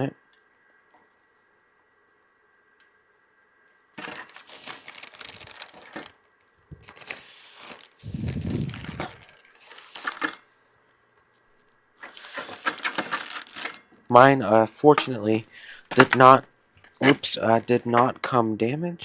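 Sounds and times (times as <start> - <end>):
packaging crinkling and rustling: 4.0 - 10.4, 12.0 - 13.8.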